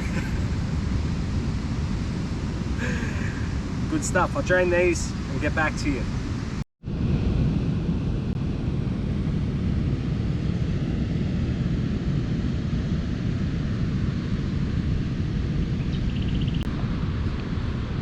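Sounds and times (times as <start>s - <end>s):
ocean surf: 0.0s - 7.4s
wind on microphone: 0.0s - 18.0s.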